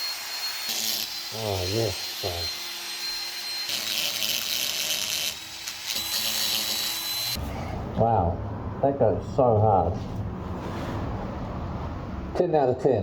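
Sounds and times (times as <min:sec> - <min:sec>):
rotary tool grinding metal: 0:00.0 - 0:07.4.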